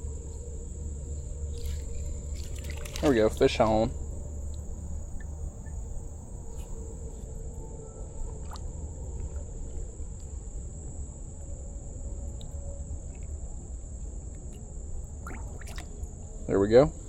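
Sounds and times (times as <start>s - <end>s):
low rumble: 0.0s - 11.4s
crickets chirping: 0.0s - 17.0s.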